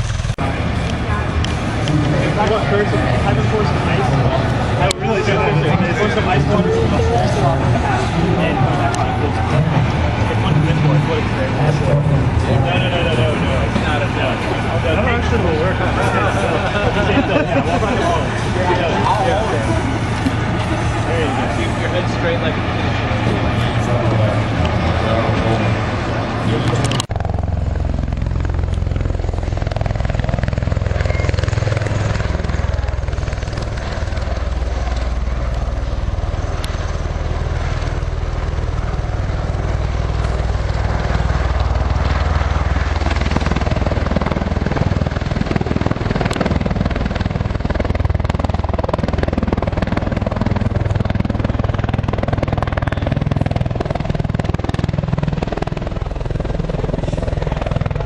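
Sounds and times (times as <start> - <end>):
aircraft engine drone: 0.0 - 58.0.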